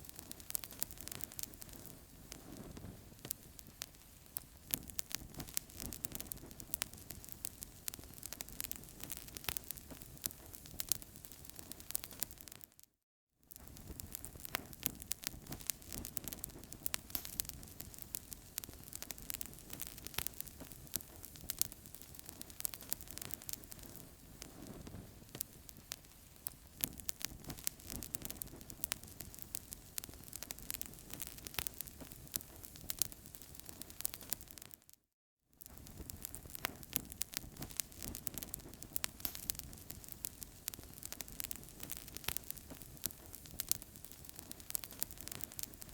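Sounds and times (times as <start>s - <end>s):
wood fire crackling and popping: 0.0s - 12.8s, 13.5s - 35.0s, 35.6s - 45.9s
low rush of flames: 35.8s - 45.9s.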